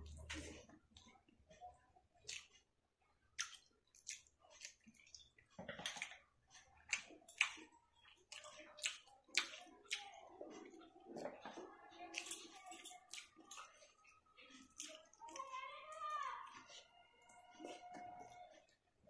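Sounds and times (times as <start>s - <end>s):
fingers squishing rice: 2.2s - 2.7s, 3.3s - 11.4s
wet chewing and lip-smacking: 2.2s - 2.7s, 3.4s - 15.7s, 16.4s - 18.9s.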